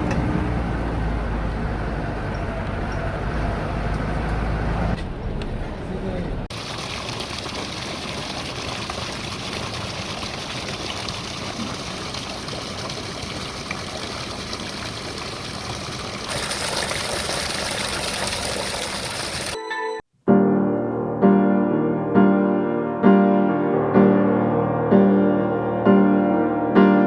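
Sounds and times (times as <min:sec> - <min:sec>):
water rushing: 0:06.5 - 0:19.6.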